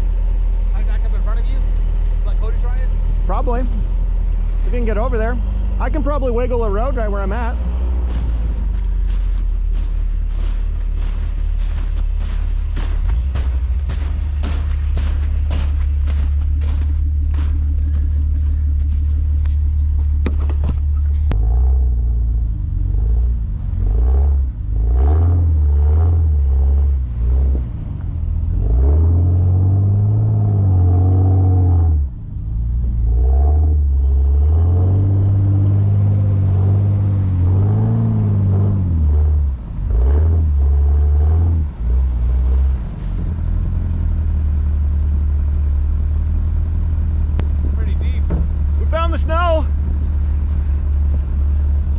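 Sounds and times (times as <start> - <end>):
off-road engine revving: 0.0 - 51.9
sharp clicks and knocks: 18.9 - 21.4.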